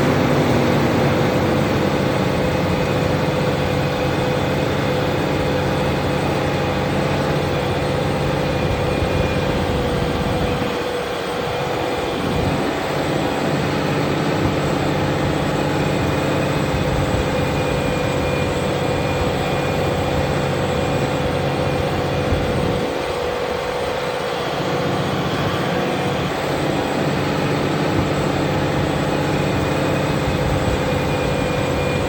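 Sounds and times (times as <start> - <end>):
steady whine: 0.0 - 32.0
tractor diesel engine under load: 0.0 - 32.0.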